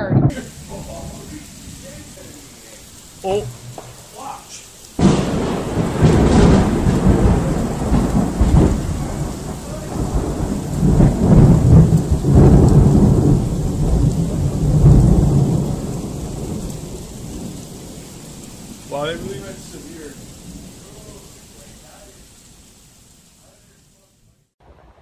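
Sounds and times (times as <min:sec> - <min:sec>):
rolling thunder: 0:00.0 - 0:23.6, 0:24.6 - 0:25.0
steady rain: 0:00.0 - 0:25.0.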